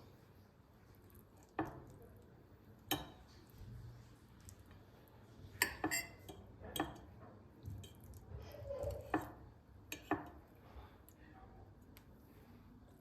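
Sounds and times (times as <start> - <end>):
dishes and utensils clinking: 5.5 - 10.4.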